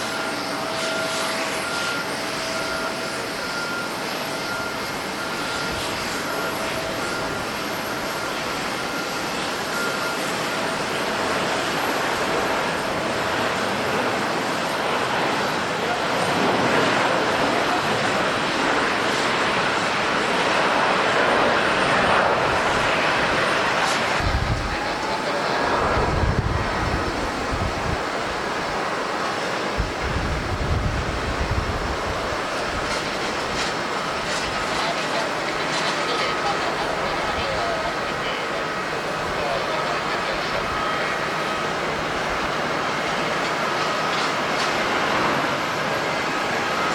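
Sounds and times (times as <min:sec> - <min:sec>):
jet engines of landing plane: 0:00.0 - 0:46.9
wind buffeting microphone: 0:10.9 - 0:46.9.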